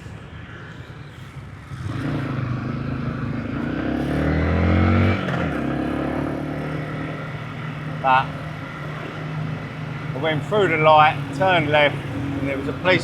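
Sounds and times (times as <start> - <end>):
small motorcycle engine accelerating: 1.7 - 7.0.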